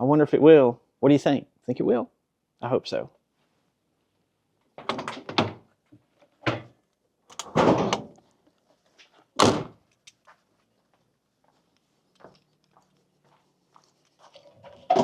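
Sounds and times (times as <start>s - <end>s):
door clunks and knocks: 4.8s - 5.6s, 6.4s - 6.7s, 7.4s - 8.1s, 9.4s - 9.8s
door slamming shut: 7.4s - 8.1s, 9.4s - 9.8s.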